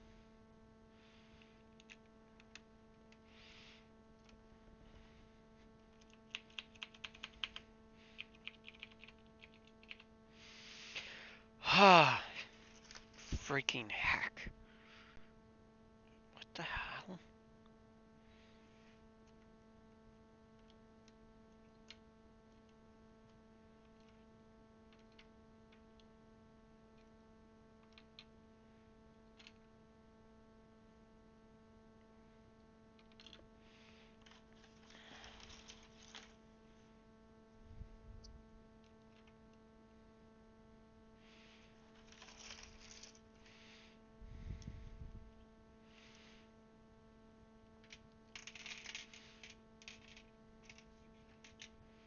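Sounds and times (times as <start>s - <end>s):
low electrical hum: 0.0s - 52.0s
keycaps clicking and clattering: 1.7s - 3.2s, 5.8s - 10.1s, 24.9s - 26.1s, 27.8s - 28.3s, 33.0s - 33.5s, 34.2s - 36.4s, 41.9s - 43.2s, 47.8s - 51.8s.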